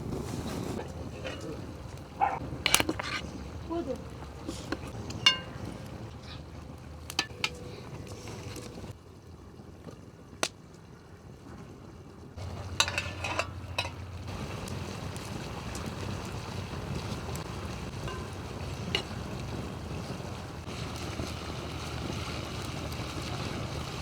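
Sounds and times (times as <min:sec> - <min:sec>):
utensil clinking against pot: 0:01.0 - 0:03.3, 0:04.5 - 0:06.0, 0:07.1 - 0:08.3, 0:12.4 - 0:14.3, 0:17.9 - 0:19.2
food sizzling in a pot: 0:12.4 - 0:24.0.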